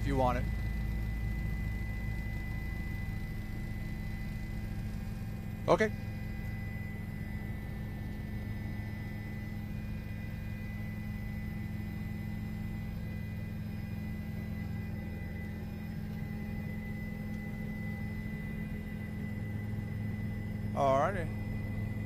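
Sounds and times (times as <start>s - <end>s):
helicopter turbine and rotors droning: 0.0s - 22.0s.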